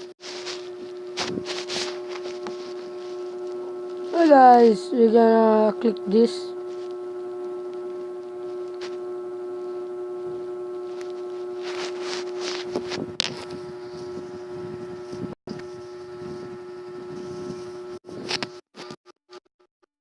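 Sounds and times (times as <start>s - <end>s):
droning tone with overtones: 0.0s - 18.4s.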